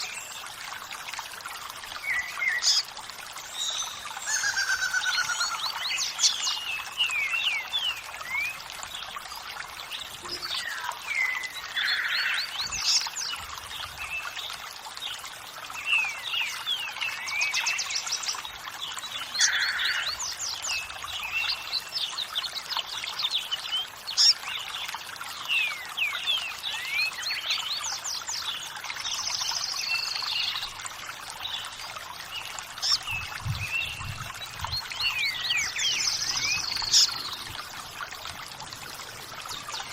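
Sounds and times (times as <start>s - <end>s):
running water: 0.0s - 39.9s
birds chirping and singing: 32.8s - 37.6s.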